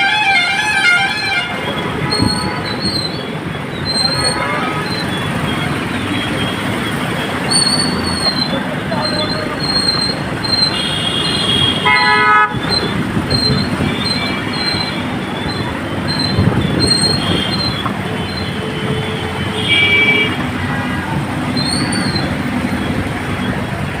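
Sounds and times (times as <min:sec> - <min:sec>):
train horn blast: 0:00.0 - 0:02.7
high squealing tone: 0:00.0 - 0:19.4, 0:20.1 - 0:24.0
train wheels rumbling on rails: 0:00.6 - 0:11.9, 0:12.5 - 0:24.0.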